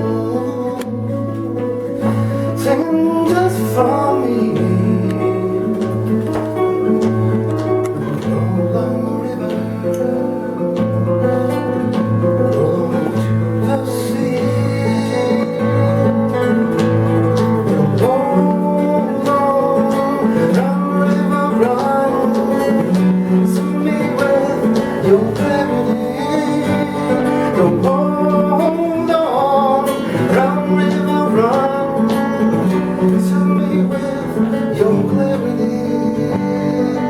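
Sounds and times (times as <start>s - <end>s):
fingerpicked acoustic guitar: 0.0s - 37.0s.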